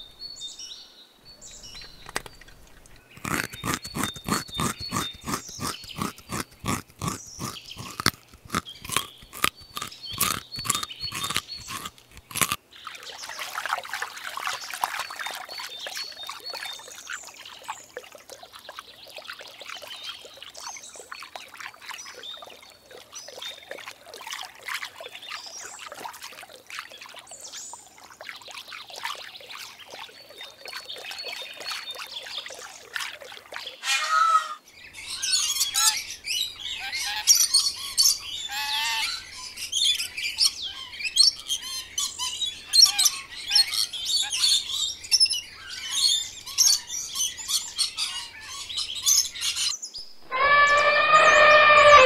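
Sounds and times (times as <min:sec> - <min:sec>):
bird chirps: 0:00.0 - 0:12.5
pond water trickling: 0:00.0 - 0:33.9
parrots chirping and squawking: 0:01.9 - 0:12.6, 0:50.2 - 0:52.0.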